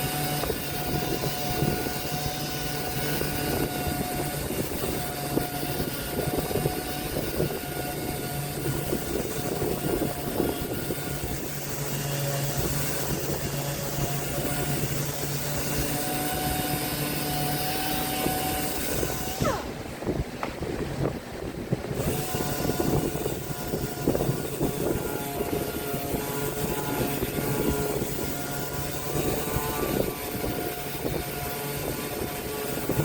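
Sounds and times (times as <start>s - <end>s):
power tool motor whine: 0.0s - 33.0s.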